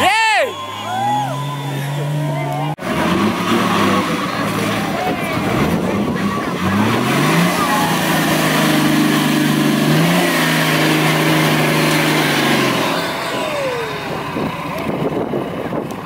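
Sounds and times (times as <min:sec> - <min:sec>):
engine revving hard: 0:01.1 - 0:15.8.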